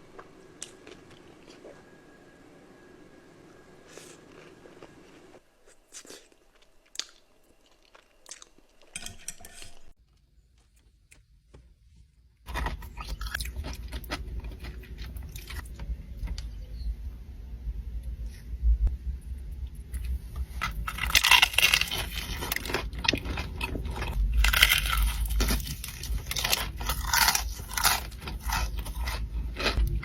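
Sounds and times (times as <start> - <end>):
crunchy food chewing: 3.9 - 9.0, 12.5 - 16.4, 19.9 - 30.0.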